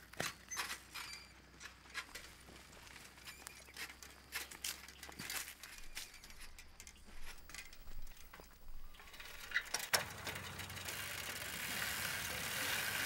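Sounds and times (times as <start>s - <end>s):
bicycle clicking and rattling: 0.1s - 13.0s.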